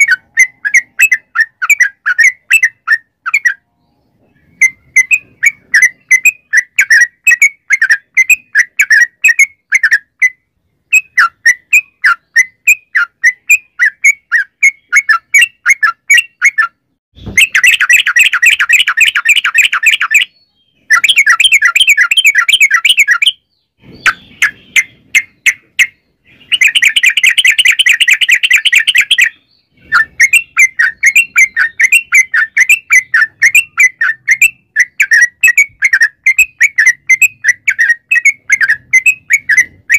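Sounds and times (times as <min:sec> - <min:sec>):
bulbul singing bubbly chirps: 0:17.4 - 0:39.9.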